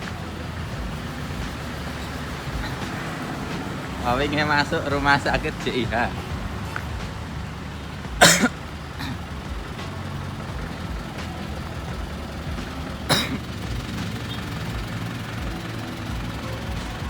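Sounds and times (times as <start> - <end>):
truck engine running: 0.0 - 17.0
person coughing: 8.2 - 9.2, 13.1 - 13.5.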